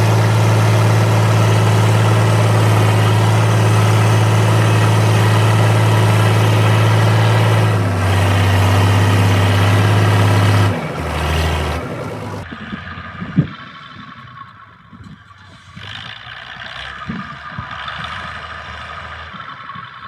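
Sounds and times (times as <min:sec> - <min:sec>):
tractor diesel engine running: 0:00.0 - 0:14.5.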